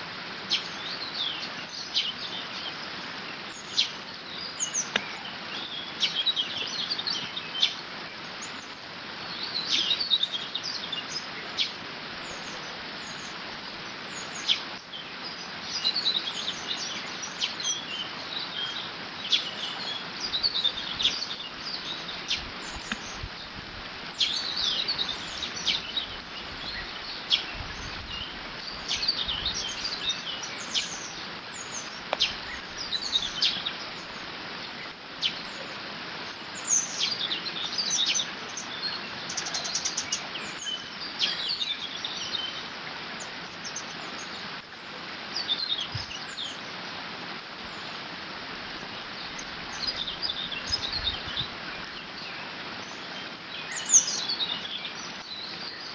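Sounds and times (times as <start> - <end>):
songbirds singing: 0.0 - 55.9.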